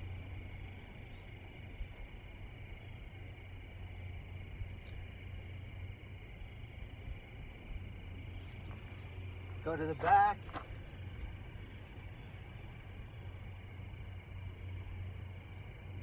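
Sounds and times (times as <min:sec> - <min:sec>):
faint ticks: 0:04.5 - 0:05.5, 0:07.5 - 0:09.6, 0:10.4 - 0:12.8.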